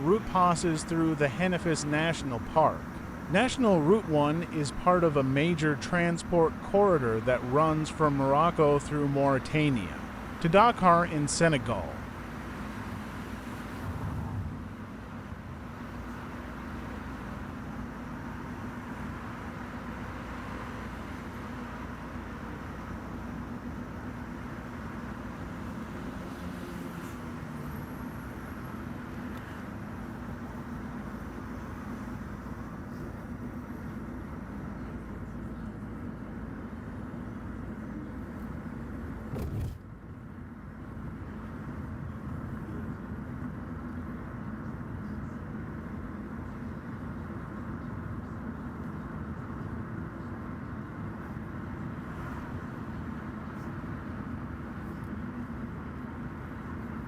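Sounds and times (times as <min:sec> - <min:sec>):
car engine and tyre noise: 0:00.0 - 0:57.0.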